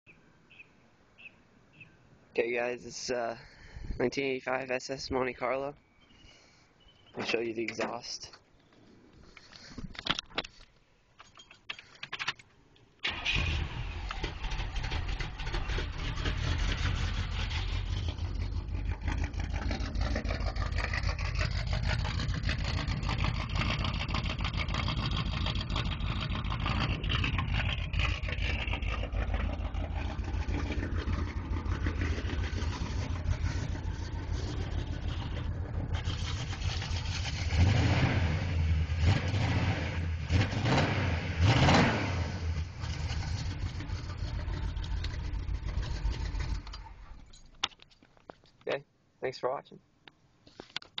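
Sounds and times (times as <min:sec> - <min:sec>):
car engine starting and idling: 0:13.0 - 0:47.6.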